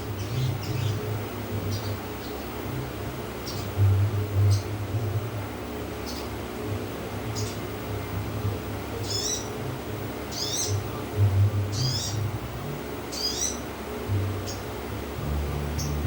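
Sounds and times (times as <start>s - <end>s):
sunbird twittering chirps: 0.0s - 2.6s, 3.4s - 3.8s, 6.0s - 6.4s, 7.3s - 7.7s, 9.0s - 9.6s, 10.2s - 10.8s, 11.7s - 12.3s, 13.1s - 13.7s, 15.7s - 16.0s
steady low hum: 0.0s - 16.0s.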